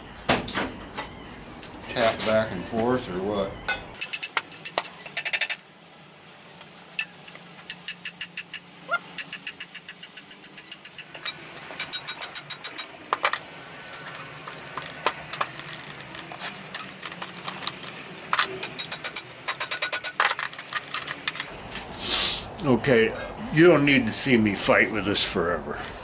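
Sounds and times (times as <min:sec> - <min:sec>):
metal tapping and rattling: 0:04.0 - 0:21.6.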